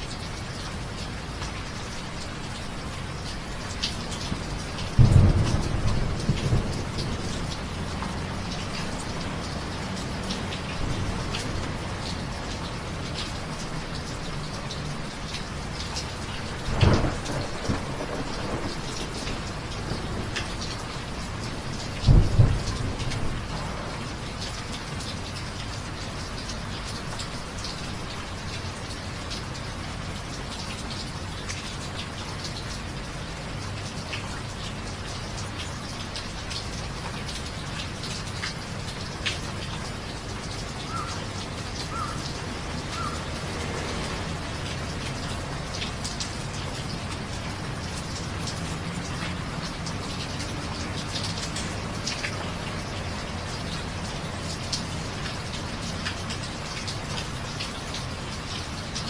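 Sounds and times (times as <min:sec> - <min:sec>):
steady rain falling: 0:00.0 - 0:59.0
thunder claps: 0:05.0 - 0:07.4, 0:16.8 - 0:20.6.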